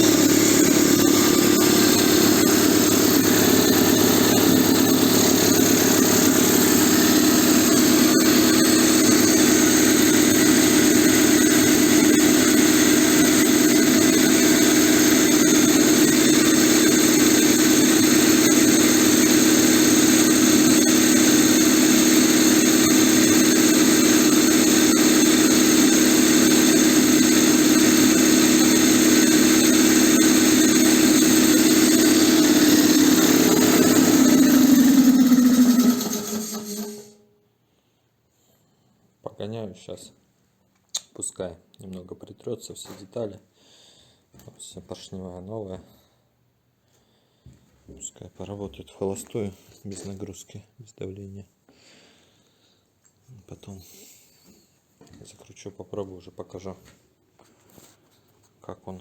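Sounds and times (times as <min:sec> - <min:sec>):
piston compressor running: 0:00.0 - 0:37.2.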